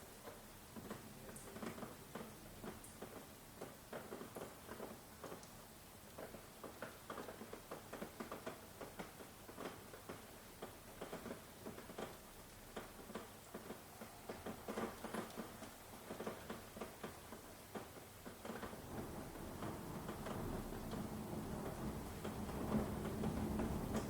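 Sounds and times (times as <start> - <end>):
raindrops tapping: 0.2 - 24.0.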